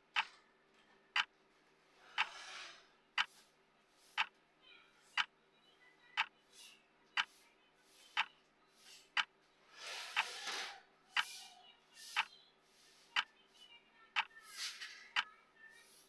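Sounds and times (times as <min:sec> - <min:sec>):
clock ticking: 0:00.0 - 0:00.4, 0:01.1 - 0:01.4, 0:02.2 - 0:02.4, 0:03.2 - 0:03.4, 0:04.1 - 0:04.4, 0:05.2 - 0:05.4, 0:06.1 - 0:06.4, 0:07.1 - 0:07.4, 0:08.1 - 0:08.4, 0:09.0 - 0:09.4, 0:10.1 - 0:10.4, 0:11.1 - 0:11.5, 0:12.1 - 0:12.4, 0:13.2 - 0:13.4, 0:14.1 - 0:14.4, 0:15.1 - 0:15.3.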